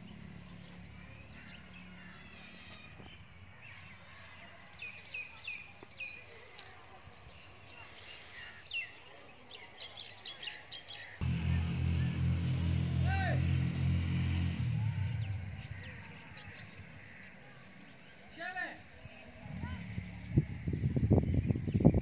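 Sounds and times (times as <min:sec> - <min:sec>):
small birds chirping: 0:00.0 - 0:22.0
loud low sound: 0:11.2 - 0:17.1.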